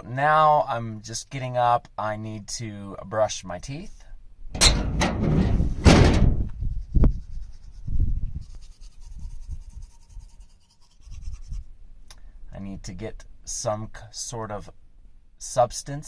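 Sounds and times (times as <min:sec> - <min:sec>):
sharp knock: 0:04.6 - 0:06.5.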